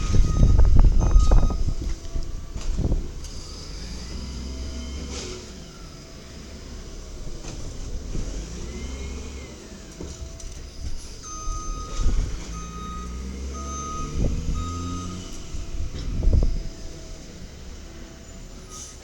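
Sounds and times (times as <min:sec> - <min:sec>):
reversing alarm beeping: 0:00.0 - 0:02.6, 0:11.0 - 0:17.4
garbage truck diesel engine: 0:00.0 - 0:19.0.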